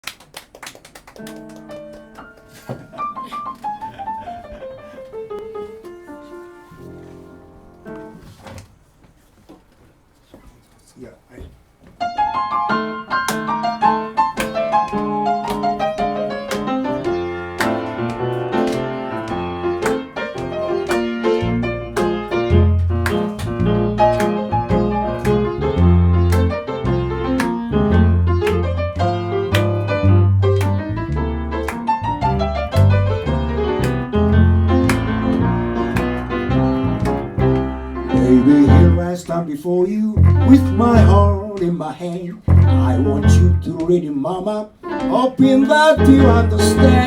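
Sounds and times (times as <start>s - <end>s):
acoustic blues piano: 1.2s - 8.9s, 11.9s - 47.0s
bass line: 21.4s - 39.1s, 40.1s - 41.5s, 42.5s - 43.8s, 45.4s - 47.0s.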